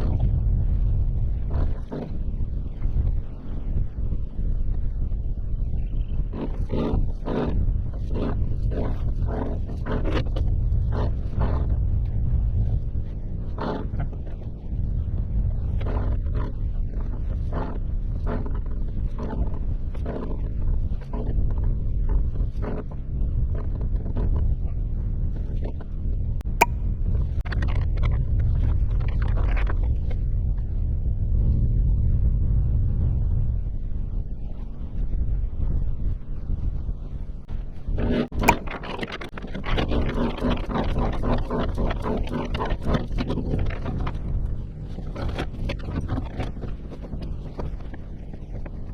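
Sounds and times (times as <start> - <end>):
steady low rumble: 0.0 - 6.1
wind rumble on microphone: 0.0 - 48.9
sharp click: 38.5 - 38.8.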